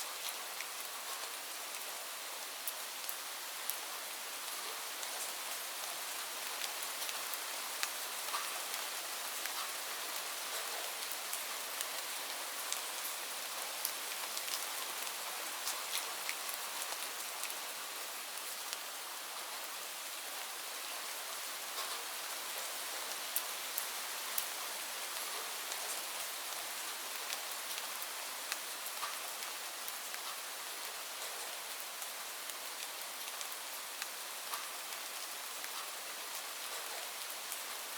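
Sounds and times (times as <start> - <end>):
rain falling: 0.0 - 37.9
raindrops ticking close by: 32.0 - 37.6.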